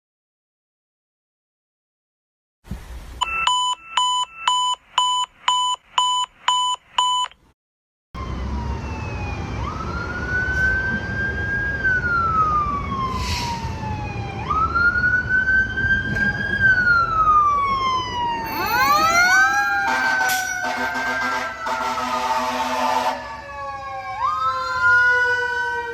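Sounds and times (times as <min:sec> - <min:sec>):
truck engine rumble: 0:08.2 - 0:24.4
fire engine siren wailing: 0:08.2 - 0:25.9
horn blast: 0:19.8 - 0:23.2.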